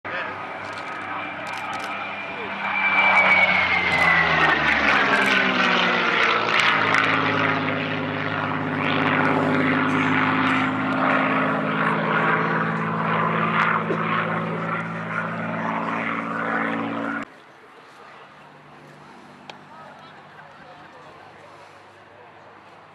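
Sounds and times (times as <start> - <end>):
propeller plane engine droning: 0.1 - 22.9.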